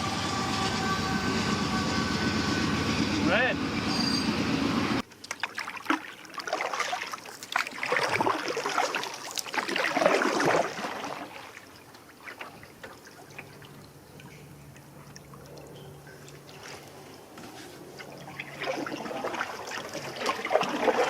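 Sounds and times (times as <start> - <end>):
water splashing and trickling: 5.0 - 21.0.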